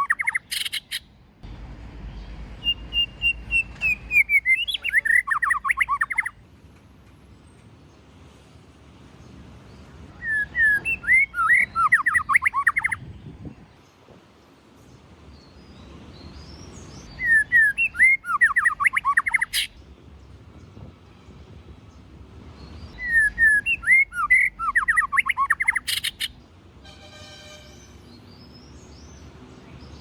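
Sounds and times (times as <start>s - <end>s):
bird singing warble: 0.0s - 1.2s, 2.1s - 6.4s, 9.7s - 14.0s, 14.8s - 19.9s, 22.6s - 26.5s.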